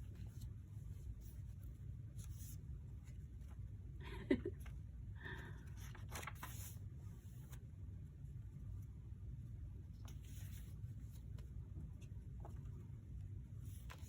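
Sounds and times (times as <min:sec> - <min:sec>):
low steady hum: 0:00.0 - 0:14.0
paper pages rustling: 0:05.7 - 0:07.6, 0:10.0 - 0:14.0.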